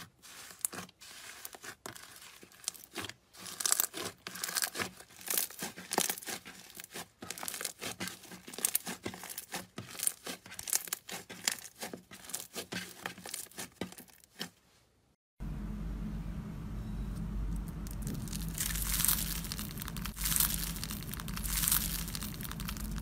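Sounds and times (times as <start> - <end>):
slime crackling and popping: 1.4 - 12.6, 17.8 - 23.0
steady low hum: 15.4 - 23.0.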